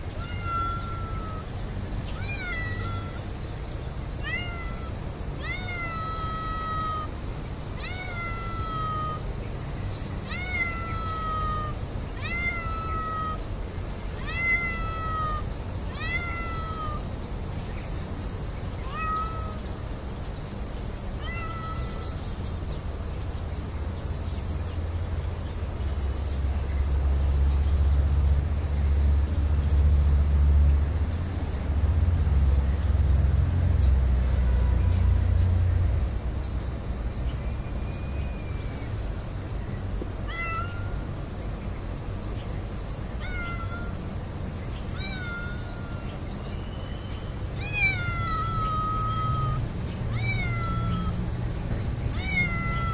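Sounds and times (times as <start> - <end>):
passing vehicle engine rumble: 0.0 - 52.9
cat meowing: 0.1 - 3.2, 4.2 - 9.3, 10.2 - 13.5, 14.2 - 17.1, 18.8 - 19.8, 21.1 - 22.2, 40.2 - 41.1, 43.2 - 44.1, 44.9 - 46.2, 47.6 - 51.2, 52.1 - 52.9.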